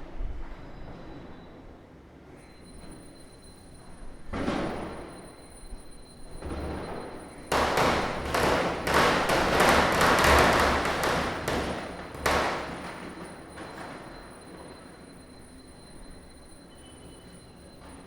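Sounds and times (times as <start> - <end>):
sharp firecracker bang: 7.5 - 13.4
firecrackers bursting: 7.5 - 14.0.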